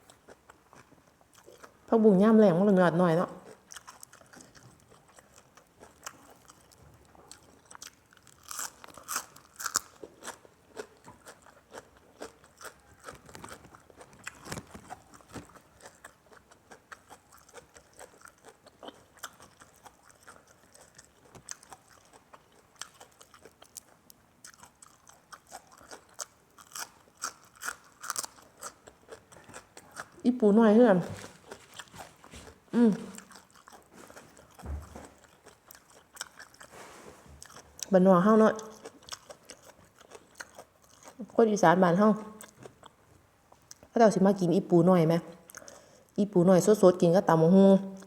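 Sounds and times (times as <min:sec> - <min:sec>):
crunching raw vegetables: 0:03.4 - 0:36.7, 0:37.3 - 0:41.3.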